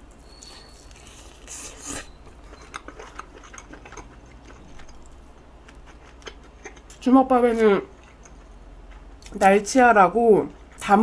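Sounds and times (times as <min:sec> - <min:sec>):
chewing and utensil clicks: 0:00.4 - 0:07.0.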